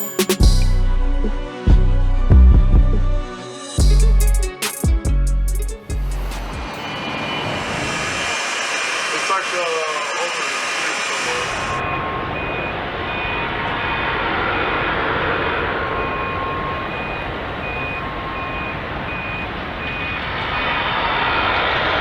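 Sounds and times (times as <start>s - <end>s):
high electronic warning beeps: 0.0s - 0.5s, 11.2s - 14.2s, 15.8s - 21.4s
aircraft engines rushing: 5.9s - 22.0s.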